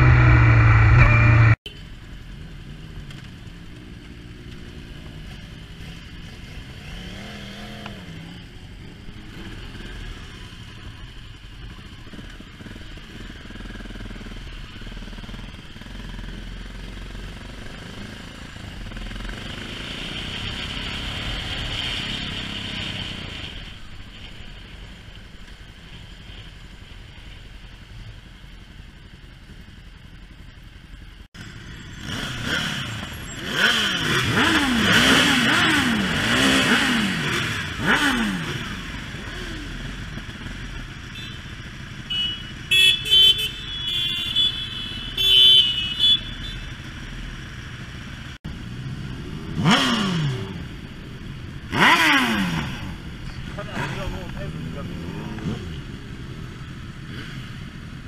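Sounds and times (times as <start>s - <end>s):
motorcycle engines pulling away: 0.0s - 58.0s
short high-pitched beeps: 0.4s - 1.6s
quiet steady engine: 23.5s - 32.0s, 38.5s - 49.5s.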